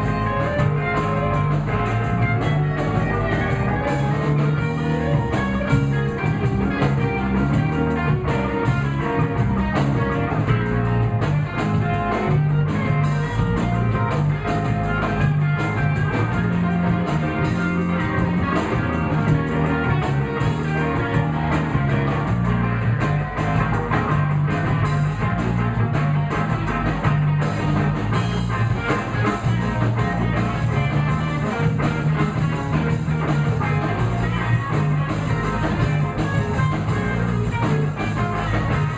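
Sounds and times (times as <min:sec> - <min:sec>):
bass guitar: 0:00.0 - 0:38.9
drum kit: 0:00.0 - 0:38.9
electric guitar: 0:00.0 - 0:38.9.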